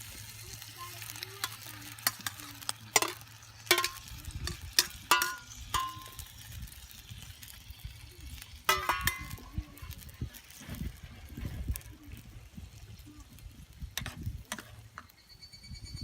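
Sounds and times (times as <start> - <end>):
utensil clinking in frying pan: 1.3 - 6.5, 8.6 - 9.6.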